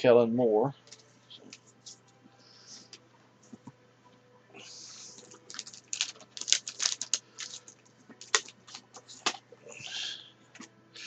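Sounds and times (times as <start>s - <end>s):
cards clicking and crinkling: 0.9s - 2.0s, 4.9s - 9.4s
wrapper rustle: 5.0s - 9.4s.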